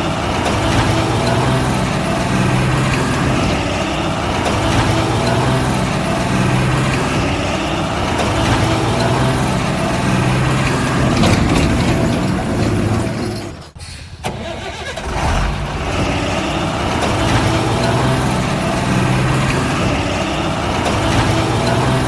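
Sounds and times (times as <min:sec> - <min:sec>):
heavy engine idling: 0:00.0 - 0:22.0.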